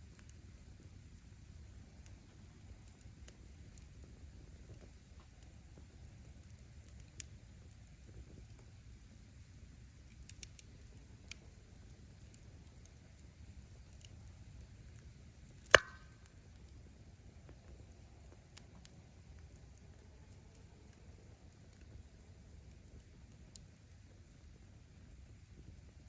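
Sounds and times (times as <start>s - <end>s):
fire crackling: 0.0s - 26.0s
low rumble of flame: 0.0s - 26.0s
log popping: 15.5s - 16.4s.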